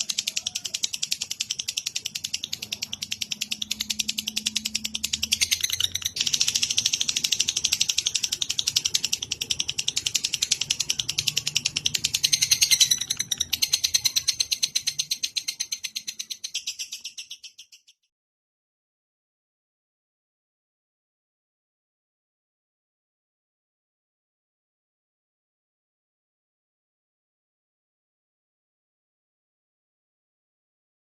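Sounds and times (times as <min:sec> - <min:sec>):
songbird chattering trill: 0:00.0 - 0:17.9.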